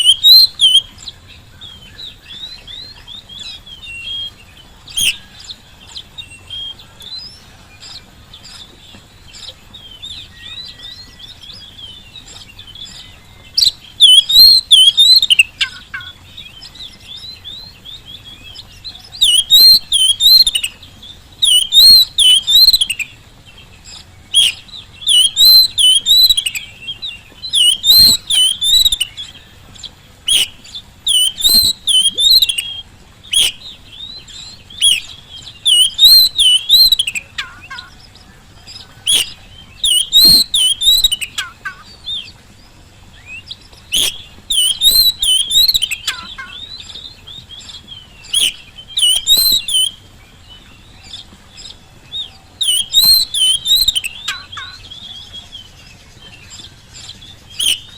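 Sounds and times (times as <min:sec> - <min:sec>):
bird warbling song: 0:00.0 - 0:57.9.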